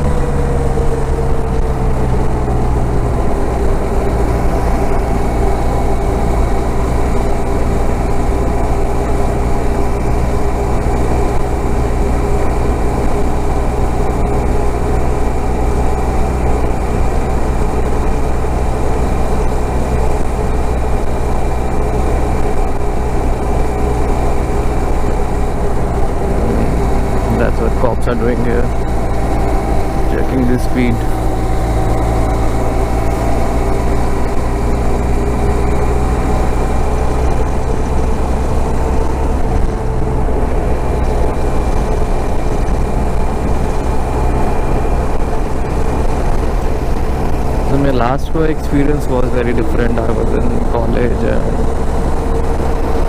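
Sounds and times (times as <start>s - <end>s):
motorcycle engine cruising: 0.0s - 53.0s
wind rushing: 25.6s - 27.9s.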